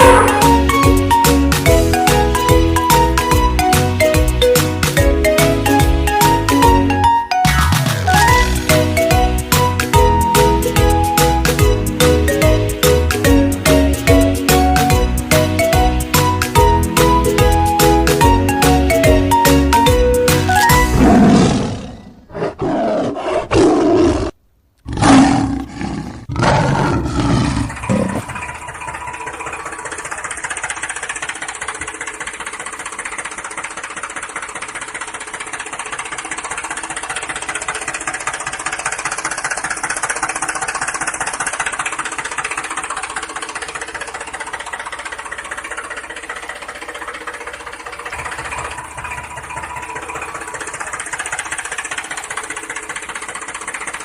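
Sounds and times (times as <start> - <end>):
lion-like roars: 0.0 - 0.7, 20.9 - 28.5.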